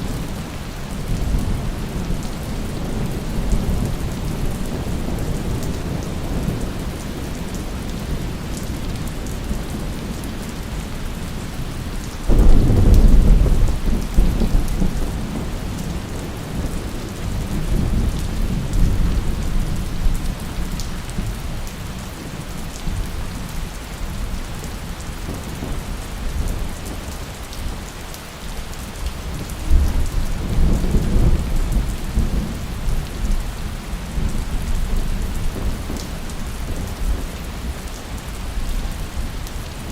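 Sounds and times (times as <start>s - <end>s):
steady rain: 0.0s - 39.9s
thunder rumbling: 11.6s - 20.4s.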